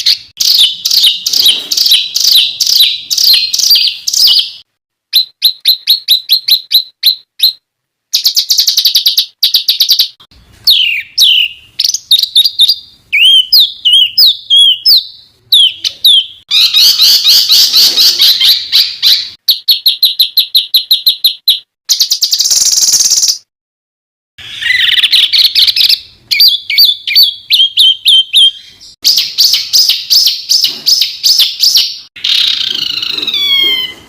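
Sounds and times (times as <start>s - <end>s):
bird chattering and trilling: 0.0s - 4.6s, 8.2s - 23.5s, 24.4s - 34.0s
songbird buzzy trill: 0.0s - 23.5s.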